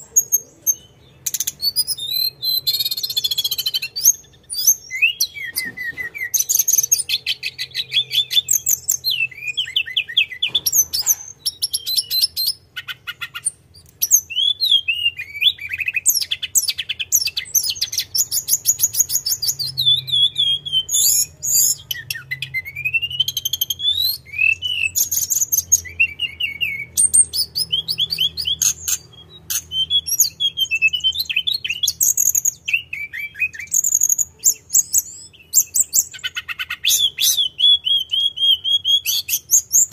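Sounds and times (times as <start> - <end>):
songbird trilling: 0.0 - 39.9.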